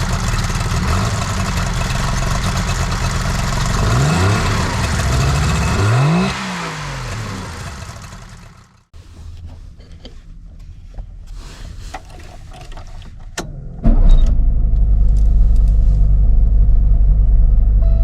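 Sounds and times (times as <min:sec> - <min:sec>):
two-stroke engine starting and idling: 0:00.0 - 0:08.9.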